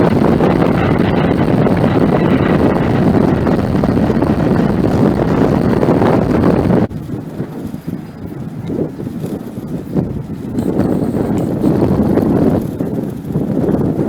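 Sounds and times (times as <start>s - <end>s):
faint steady whine: 0.0s - 7.0s, 10.5s - 12.8s
jet engines rumbling: 0.0s - 9.5s.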